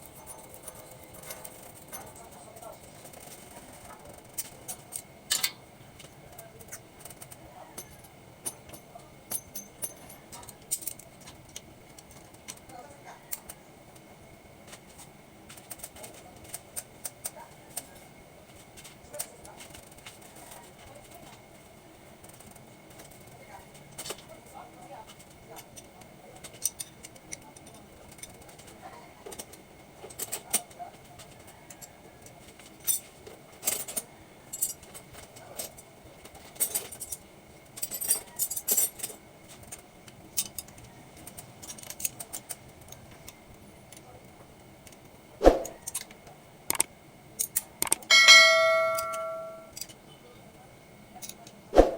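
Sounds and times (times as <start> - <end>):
metal tools clinking: 4.4 - 5.6, 47.4 - 50.0
metallic clicks of hand tools: 46.7 - 48.3.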